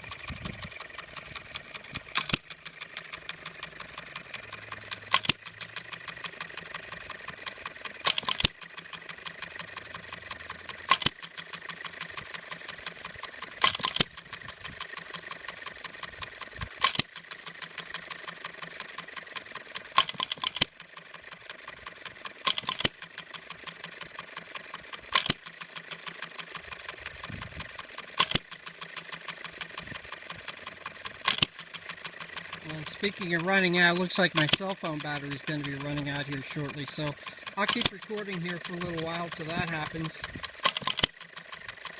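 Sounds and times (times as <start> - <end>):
fast mechanical clicking: 0.0 - 41.9
engine firing with sharp bang: 32.7 - 41.2.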